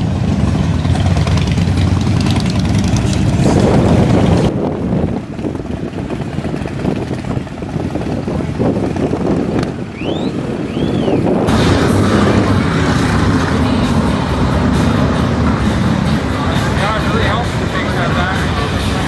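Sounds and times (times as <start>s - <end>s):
motorcycle engines rumbling: 0.0s - 19.0s
wind buffeting microphone: 0.0s - 19.0s
whistle-like chirps: 9.9s - 11.3s.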